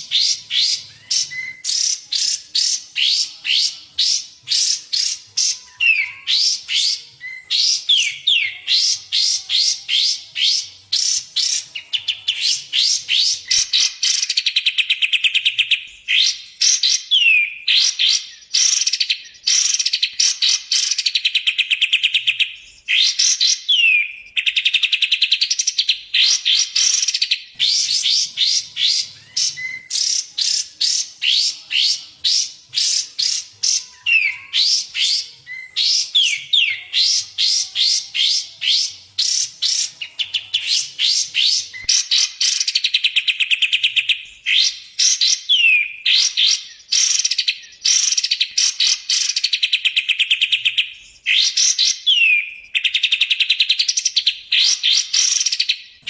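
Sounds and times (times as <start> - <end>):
sharp down-slurred whistles: 0.0 - 11.6, 12.3 - 40.0.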